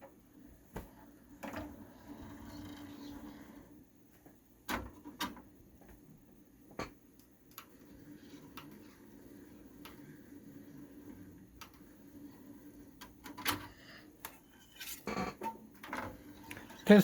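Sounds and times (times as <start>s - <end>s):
mechanism clicks and clunks: 4.6s - 5.6s, 11.1s - 17.0s.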